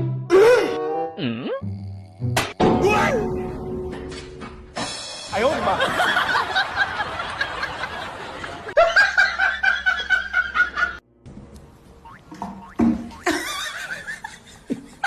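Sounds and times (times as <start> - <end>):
person laughing: 13.2 - 15.0.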